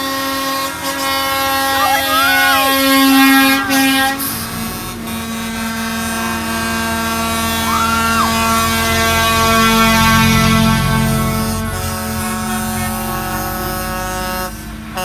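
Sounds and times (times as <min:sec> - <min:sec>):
rumble of trucks: 0:00.0 - 0:15.0
truck air horn: 0:00.0 - 0:15.0
crowd whooping: 0:00.8 - 0:05.1, 0:07.4 - 0:09.4, 0:11.8 - 0:13.8.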